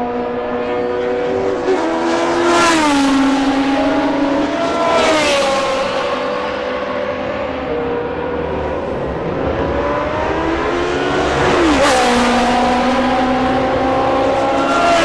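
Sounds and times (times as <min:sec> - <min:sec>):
racing car engines: 0:00.0 - 0:15.0
racing car passing by: 0:00.5 - 0:15.0.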